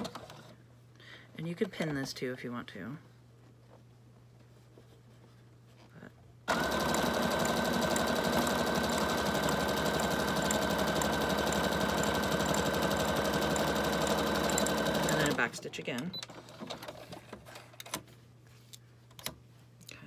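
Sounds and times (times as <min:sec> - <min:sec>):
electric sewing machine stitching: 0:06.5 - 0:15.5.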